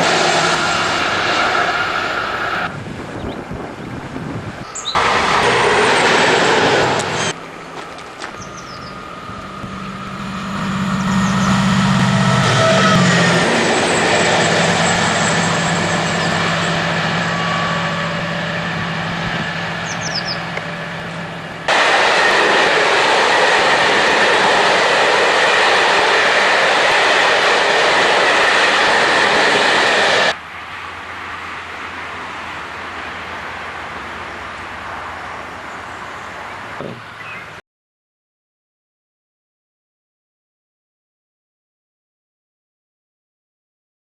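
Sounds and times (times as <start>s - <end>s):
diesel locomotive engine: 0.0s - 37.6s
rail noise with high whine: 0.0s - 37.6s
low hum: 7.3s - 24.6s.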